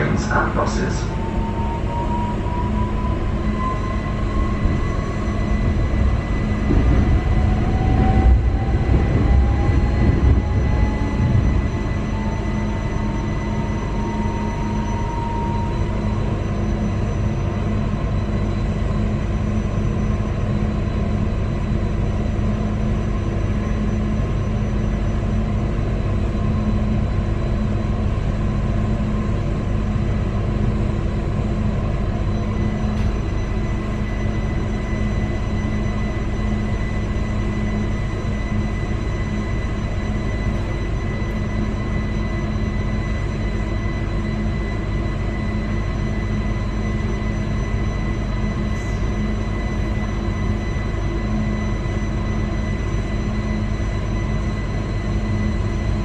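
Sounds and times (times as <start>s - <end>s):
thin steady whine: 0.0s - 56.0s
train running on track: 0.0s - 56.0s.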